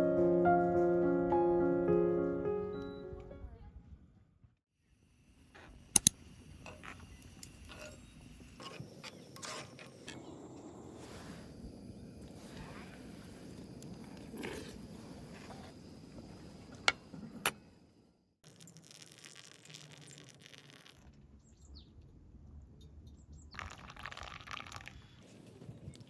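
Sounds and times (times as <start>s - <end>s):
sharp clicks: 5.9s - 6.2s.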